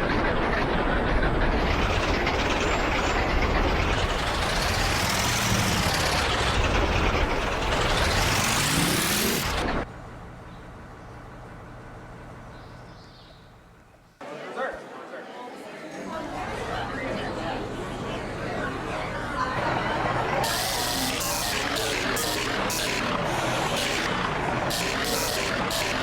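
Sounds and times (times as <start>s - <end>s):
locomotives passing at speed: 0.0s - 9.9s, 16.2s - 26.0s.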